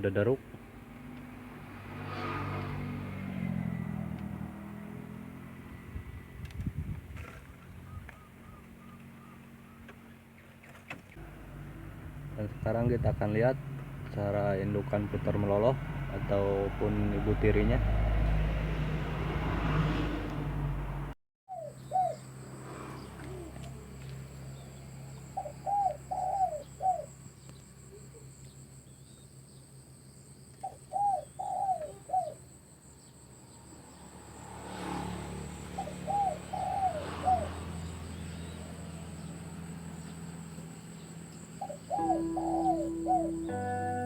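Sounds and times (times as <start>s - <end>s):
dove cooing: 21.5s - 22.2s, 22.9s - 23.8s, 25.3s - 27.1s, 30.6s - 32.4s, 35.8s - 37.9s, 41.6s - 44.0s
music: 42.0s - 44.0s.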